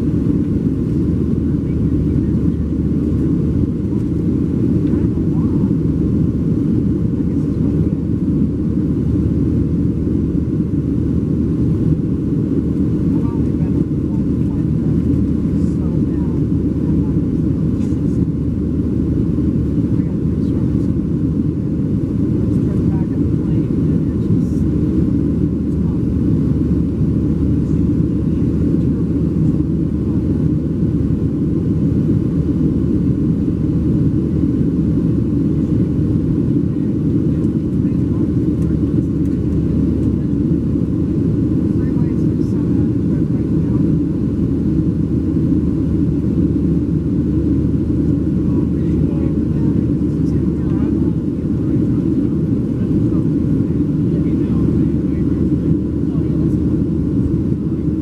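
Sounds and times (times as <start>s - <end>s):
jet engines rumbling in cabin: 0.0s - 58.0s.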